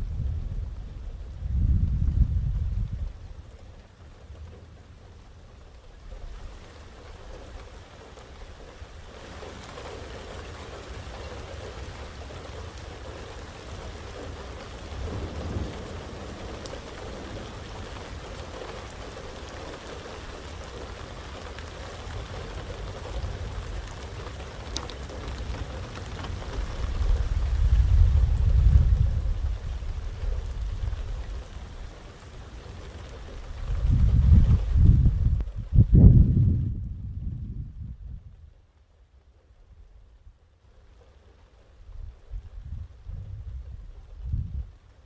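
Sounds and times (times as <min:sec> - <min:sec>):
thunder rumbling: 0:00.0 - 0:03.6, 0:11.7 - 0:38.5
heavy rain: 0:00.0 - 0:45.0.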